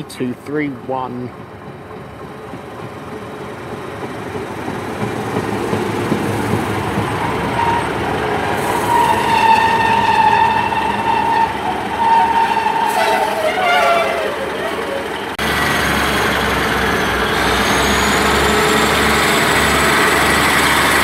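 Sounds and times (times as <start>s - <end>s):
diesel train pulling in: 0.0s - 21.0s
high brake squeal: 8.6s - 15.3s, 16.9s - 19.0s.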